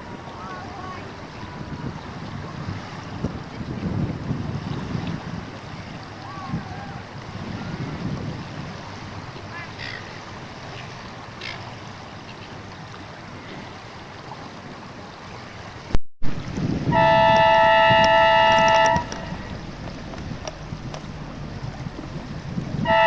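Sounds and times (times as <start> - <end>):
wind buffeting microphone: 0.0 - 11.4, 12.0 - 23.0
signal horn blast: 16.9 - 19.5, 22.8 - 23.0.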